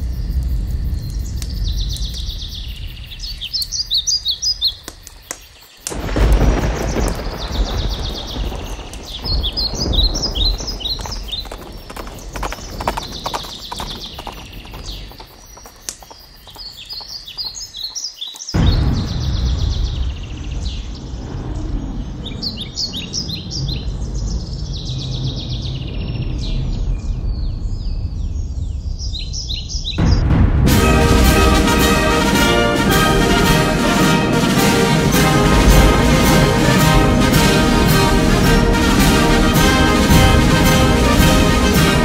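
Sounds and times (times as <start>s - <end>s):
steady low rumble: 0.0s - 4.2s, 30.0s - 42.0s
small birds chirping: 0.0s - 30.3s
outdoor ambience: 0.0s - 42.0s.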